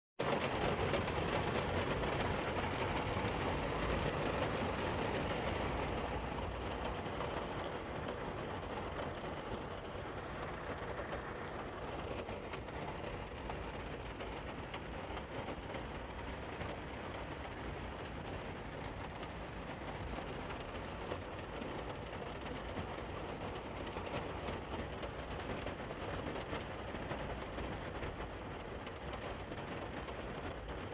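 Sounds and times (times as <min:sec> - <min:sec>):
rain pattering on vehicle roof: 0:00.2 - 0:30.9.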